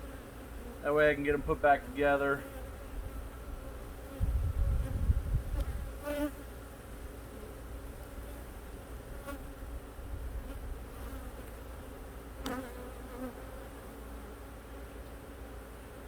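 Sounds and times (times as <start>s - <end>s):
bees buzzing: 10.4s - 16.0s.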